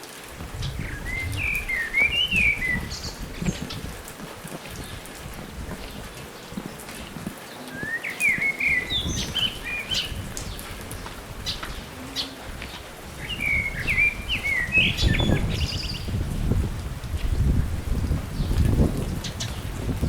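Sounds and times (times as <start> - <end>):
songbird singing whistled notes: 0.7 - 3.6, 7.6 - 10.3, 13.2 - 16.1.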